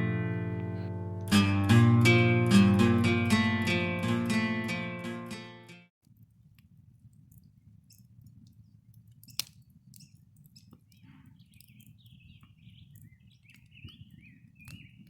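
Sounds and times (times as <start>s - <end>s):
small bird warbling song: 8.6s - 15.0s.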